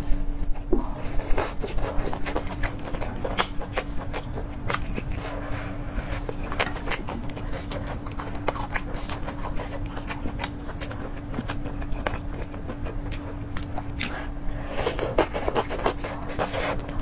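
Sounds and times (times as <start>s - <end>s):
person chewing with mouth clicks: 0.9s - 17.0s.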